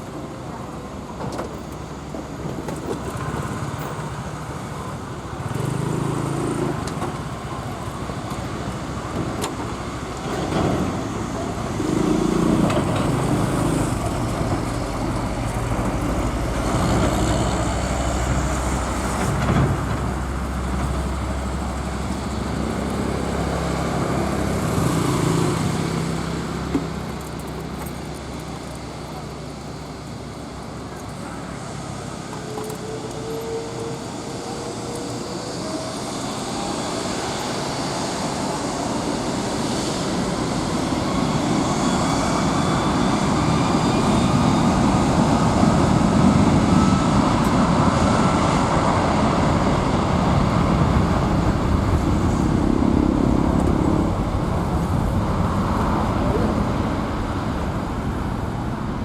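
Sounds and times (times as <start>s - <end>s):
low traffic rumble: 0.0s - 59.0s
vehicles passing: 1.8s - 59.0s.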